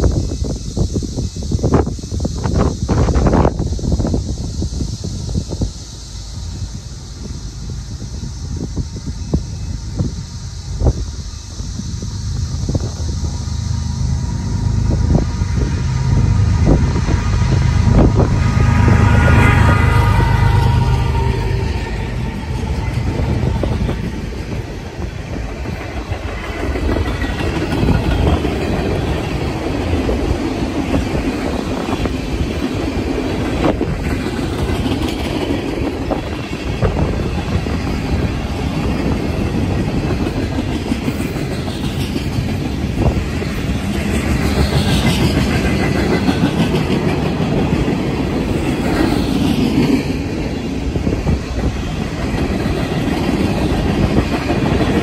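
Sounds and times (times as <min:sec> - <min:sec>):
train wheels rumbling on rails: 0:00.0 - 0:55.0
rhythmic clickety-clack: 0:22.0 - 0:55.0.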